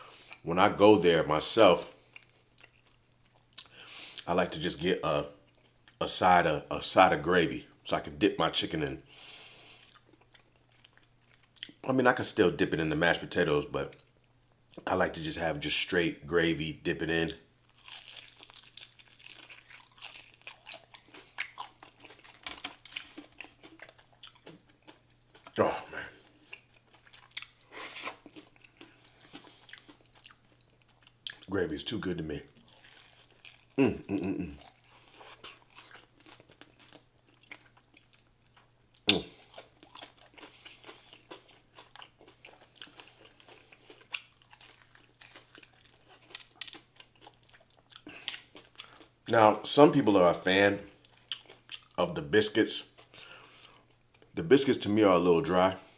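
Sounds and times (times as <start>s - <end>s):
chewing and crunching fried food: 0.0s - 6.2s, 6.8s - 12.4s, 17.1s - 55.9s
faint steady hum: 0.0s - 55.9s
mouth sounds: 33.8s - 34.6s, 39.1s - 39.4s.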